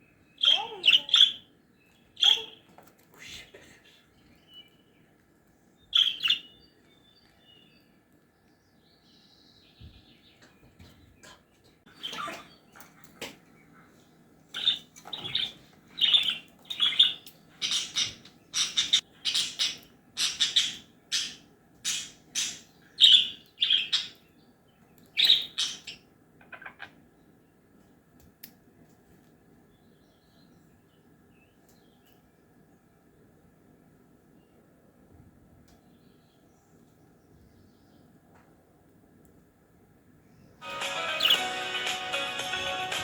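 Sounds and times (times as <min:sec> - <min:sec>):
parrot squawking: 0:40.8 - 0:41.6.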